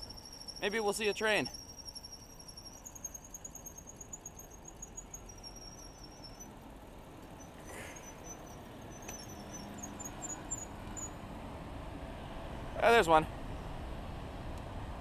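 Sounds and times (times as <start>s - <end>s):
faint high-pitched squeal: 0.0s - 11.2s
wind and road noise: 0.0s - 15.0s.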